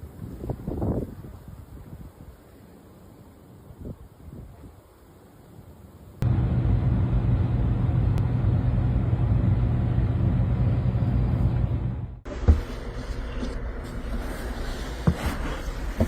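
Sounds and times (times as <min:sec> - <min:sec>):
vehicle engine rumbling: 0:06.2 - 0:15.0.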